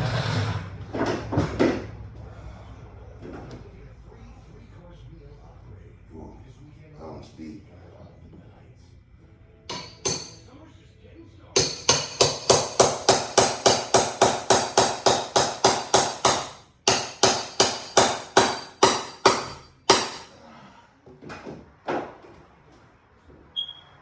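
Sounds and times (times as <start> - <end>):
hammer blows ringing: 9.7 - 10.4, 11.6 - 20.3.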